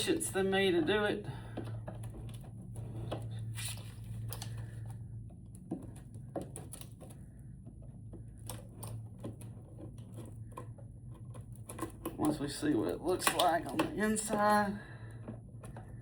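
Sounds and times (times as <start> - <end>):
steady low hum: 0.0 - 16.0
hands clicking on battery case: 13.0 - 16.0.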